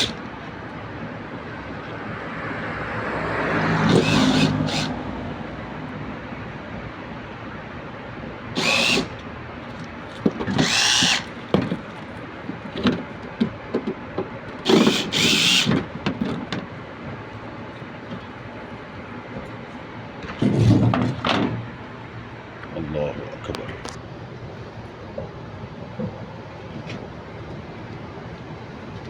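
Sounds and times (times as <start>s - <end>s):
power drill motor whine: 0.0s - 0.2s, 3.8s - 5.0s, 8.6s - 9.2s, 10.5s - 11.4s, 14.6s - 15.8s.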